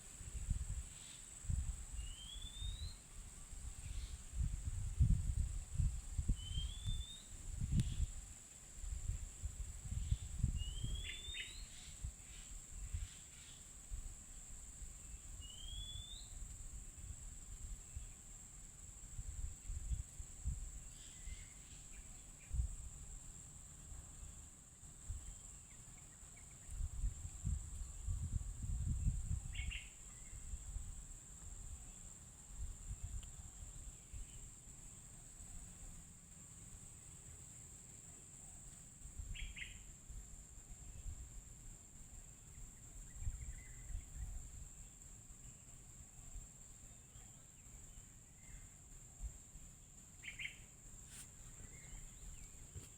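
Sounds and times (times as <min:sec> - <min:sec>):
wind rumble on microphone: 0:00.0 - 0:13.2, 0:13.8 - 0:21.5, 0:22.4 - 0:23.2, 0:25.0 - 0:25.5, 0:26.4 - 0:34.5, 0:42.6 - 0:44.8
birds whistling and chirping: 0:02.0 - 0:03.0, 0:06.4 - 0:08.0, 0:10.6 - 0:11.9, 0:15.4 - 0:16.3.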